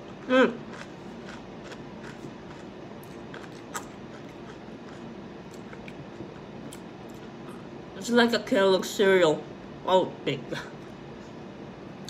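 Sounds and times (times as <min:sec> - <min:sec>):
person chewing cereal: 0:00.0 - 0:07.7.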